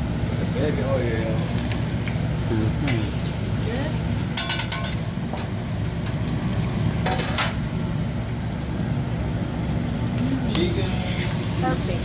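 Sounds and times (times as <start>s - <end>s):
busy restaurant rumble: 0.0s - 12.0s
metal or dishes clinking: 4.4s - 5.0s.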